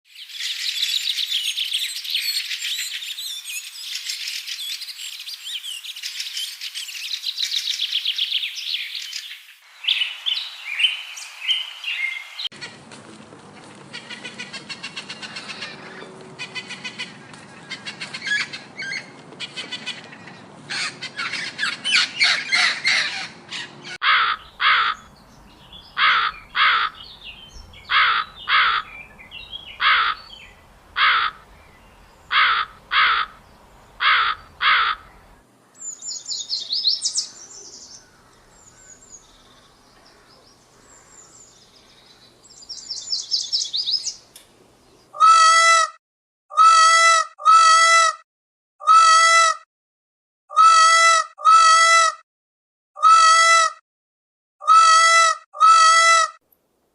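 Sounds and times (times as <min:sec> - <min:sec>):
birds chirping: 0:00.2 - 0:12.8, 0:13.9 - 0:45.2
loud bird calls in pairs: 0:00.3 - 0:12.7, 0:13.9 - 0:44.2.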